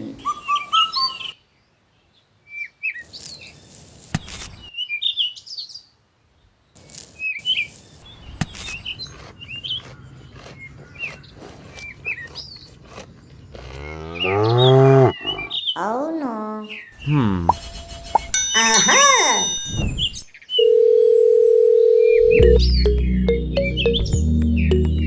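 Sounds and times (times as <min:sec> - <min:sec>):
small birds chirping: 0:02.0 - 0:18.3, 0:22.2 - 0:25.0.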